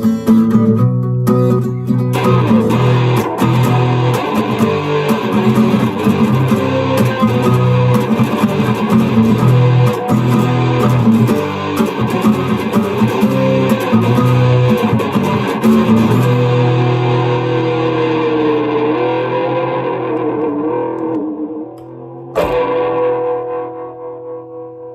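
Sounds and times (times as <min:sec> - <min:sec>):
guitar plucked notes: 0:00.0 - 0:24.9
percussive knocks on guitar: 0:22.3 - 0:23.4.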